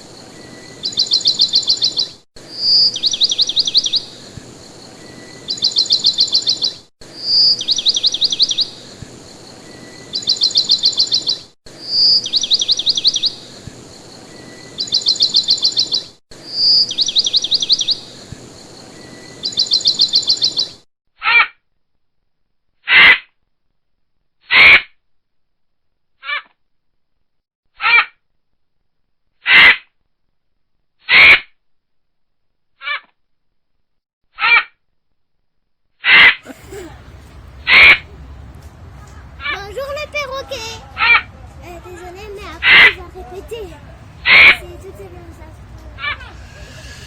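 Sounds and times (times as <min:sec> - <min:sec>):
bird song with rapid trill: 0:00.0 - 0:20.8.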